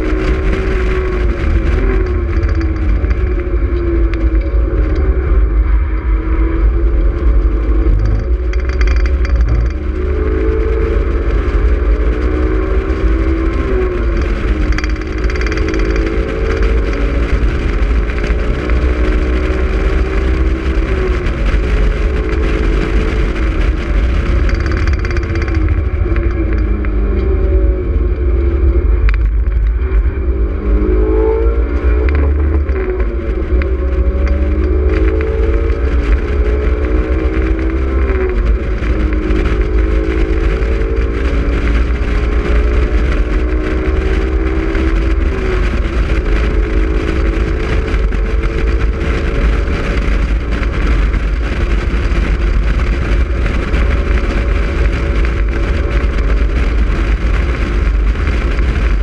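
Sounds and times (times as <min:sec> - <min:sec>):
car engine accelerating and shifting: 0:00.0 - 0:59.0
wind rumble on microphone: 0:00.0 - 0:59.0.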